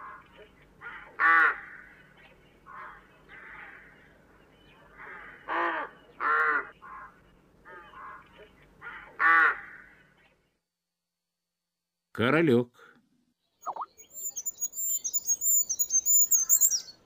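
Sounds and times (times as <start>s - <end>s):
rooks cawing: 0.8s - 4.1s, 4.9s - 10.2s.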